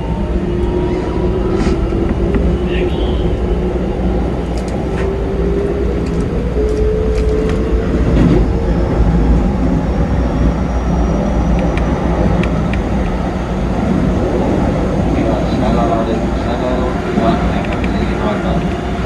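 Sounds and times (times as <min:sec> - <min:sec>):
train running gear rumble: 0:00.0 - 0:19.0
electric train motor whine: 0:04.2 - 0:19.0.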